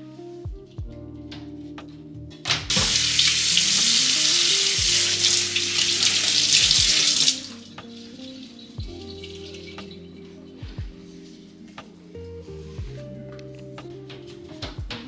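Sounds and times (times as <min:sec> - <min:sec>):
tap running water into sink: 0:02.7 - 0:10.0.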